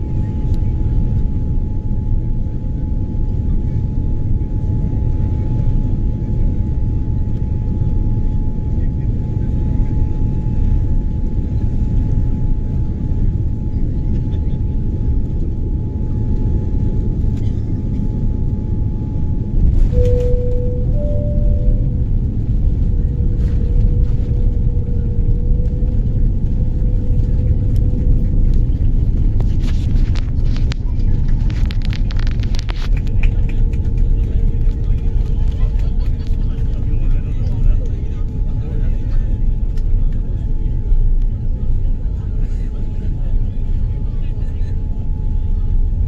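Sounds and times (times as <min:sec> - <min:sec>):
airliner cabin rumble: 0:00.0 - 0:46.0
faint steady hum: 0:17.4 - 0:40.1
thin whine: 0:19.6 - 0:25.9.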